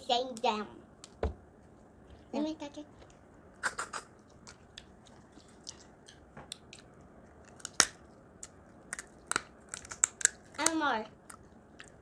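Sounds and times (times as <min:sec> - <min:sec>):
eating sounds: 0:03.6 - 0:12.0
shells cracking and snapping: 0:06.5 - 0:12.0.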